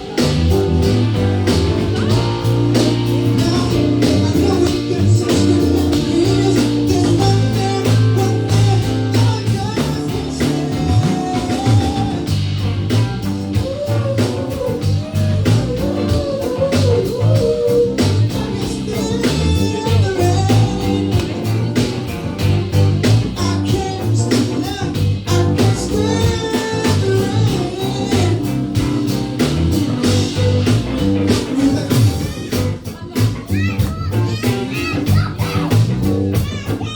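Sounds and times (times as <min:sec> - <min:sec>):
person singing: 0:00.0 - 0:12.5, 0:13.5 - 0:21.9, 0:23.2 - 0:29.2, 0:31.3 - 0:33.7
bass: 0:00.0 - 0:36.9
electric guitar: 0:00.0 - 0:36.9
steady drum beat: 0:00.0 - 0:36.9.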